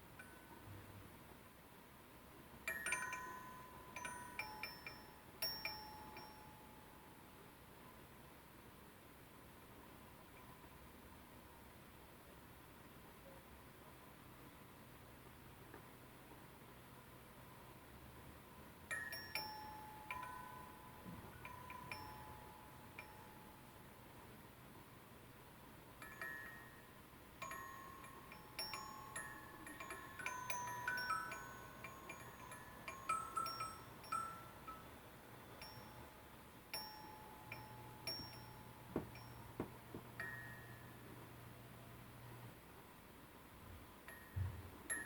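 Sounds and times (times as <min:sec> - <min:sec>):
light metallic chime pings: 0:26.0 - 0:36.2, 0:36.8 - 0:39.6
soft knocks: 0:38.9 - 0:40.1.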